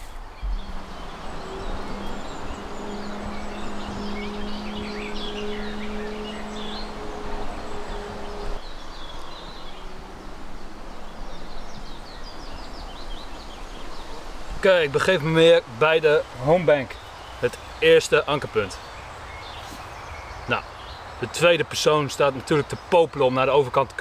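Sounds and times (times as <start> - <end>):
steady low hum: 0.0 - 12.1
light outdoor hiss: 0.0 - 24.0
woodland birds chirping: 0.0 - 24.0.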